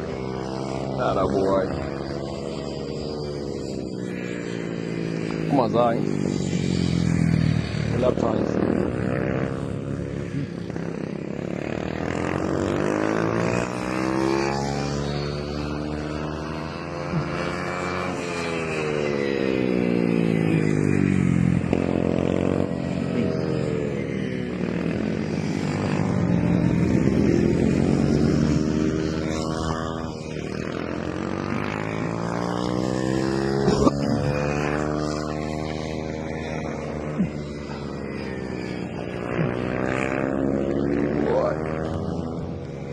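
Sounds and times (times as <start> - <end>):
mini motorcycles racing: 0.0 - 42.9.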